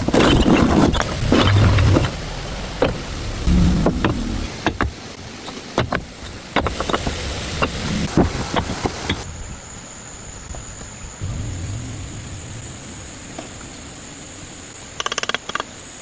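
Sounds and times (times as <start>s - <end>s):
low rumble: 1.2s - 4.6s, 11.2s - 14.6s.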